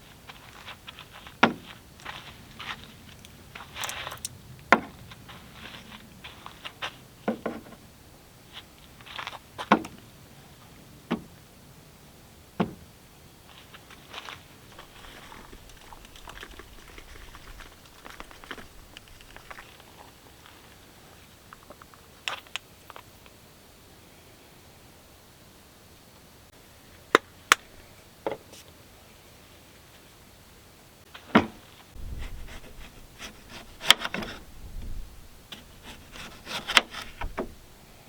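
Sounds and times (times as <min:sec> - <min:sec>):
rustling: 0:13.5 - 0:23.0, 0:31.1 - 0:38.0
sharp clicks and knocks: 0:31.4 - 0:37.6.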